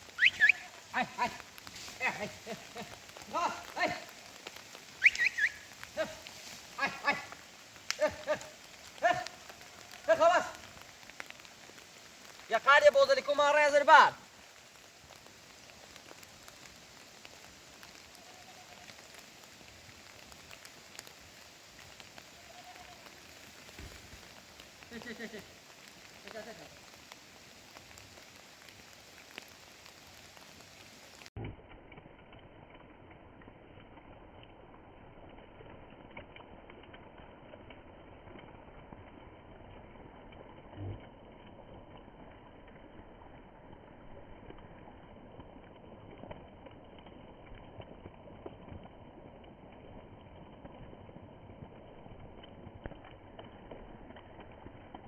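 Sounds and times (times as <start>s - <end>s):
sharp close drips: 0.0s - 22.4s
steady rain falling: 0.0s - 55.0s.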